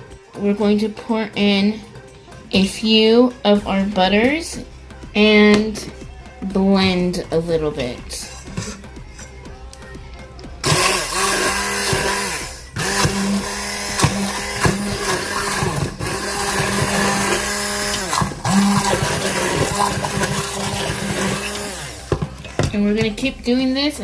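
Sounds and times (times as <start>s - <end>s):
immersion blender running: 10.6s - 22.6s.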